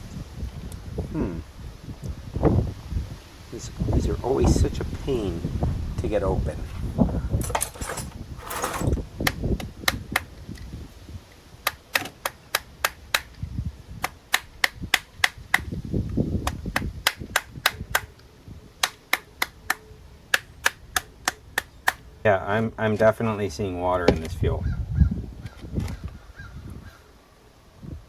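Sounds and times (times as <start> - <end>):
sharp clicks: 9.2 - 10.7, 11.6 - 15.7, 16.4 - 22.0.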